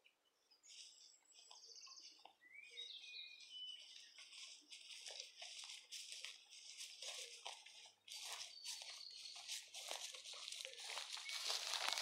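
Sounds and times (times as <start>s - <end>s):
footsteps through dry grass: 0.5s - 12.0s
songbird trills and whistles: 0.7s - 4.2s, 10.6s - 12.0s.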